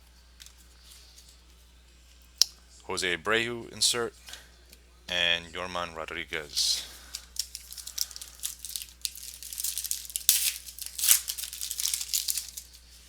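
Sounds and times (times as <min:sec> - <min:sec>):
wrapper crinkling and tearing: 0:07.0 - 0:13.0.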